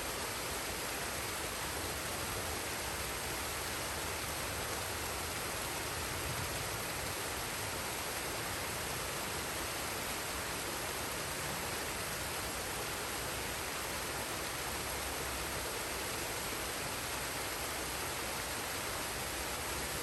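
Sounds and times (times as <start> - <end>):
waterfall and stream rushing: 0.0 - 20.0.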